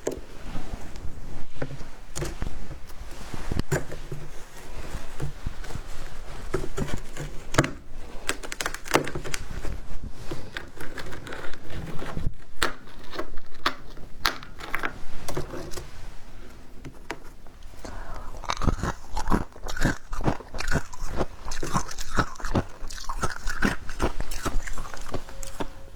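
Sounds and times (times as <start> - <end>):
ice being chewed: 17.6 - 25.9.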